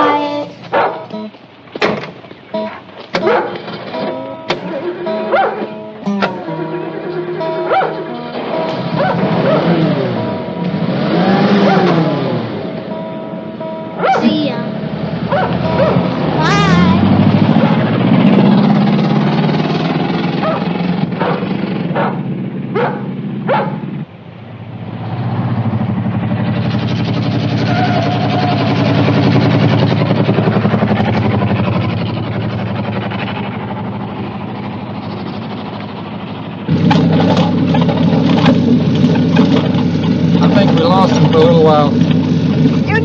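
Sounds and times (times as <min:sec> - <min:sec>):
tyres screeching: 0:00.0 - 0:23.9, 0:26.7 - 0:33.6
car engines racing: 0:00.0 - 0:43.0.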